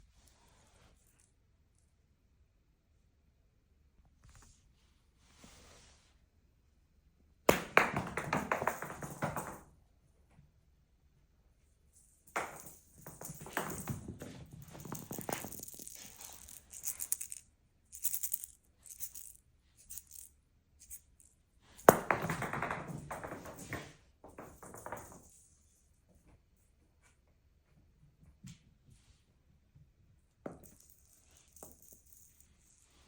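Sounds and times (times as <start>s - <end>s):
toy ball rattling: 12.3s - 23.8s, 30.5s - 33.0s.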